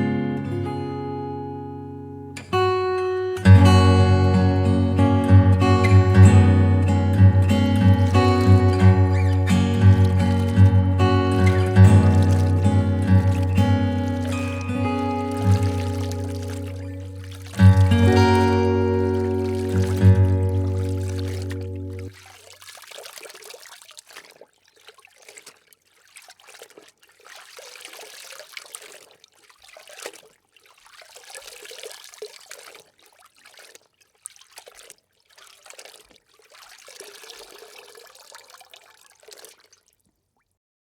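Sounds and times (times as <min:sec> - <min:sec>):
pond water splashing: 0:05.5 - 0:40.6.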